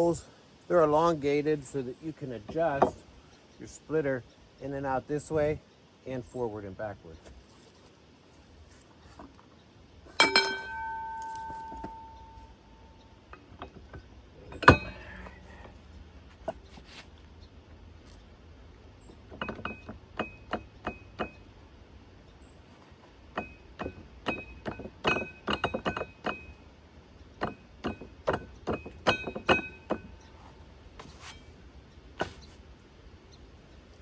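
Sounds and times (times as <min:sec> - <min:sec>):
metal clinking and tapping: 0:10.1 - 0:15.2, 0:19.1 - 0:21.5, 0:23.3 - 0:26.6, 0:27.4 - 0:30.2.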